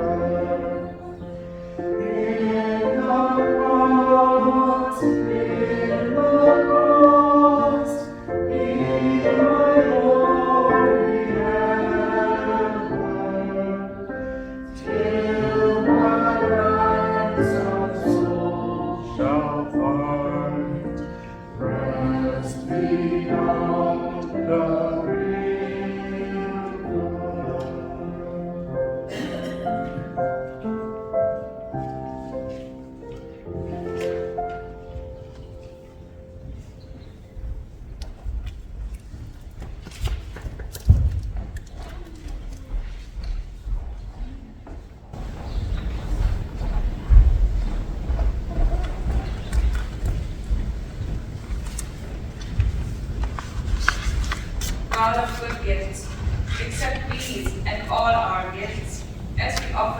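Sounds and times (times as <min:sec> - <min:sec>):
choir singing a hymn: 0:00.0 - 0:31.6, 0:45.2 - 0:59.9.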